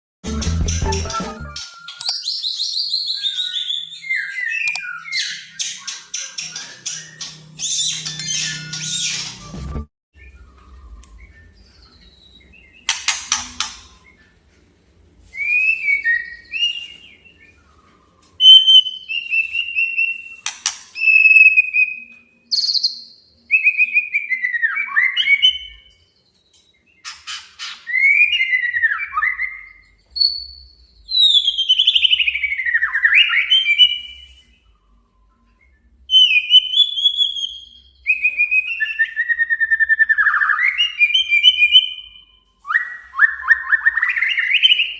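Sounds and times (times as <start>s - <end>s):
bird singing whistled phrases: 15.3s - 25.9s, 27.6s - 44.9s.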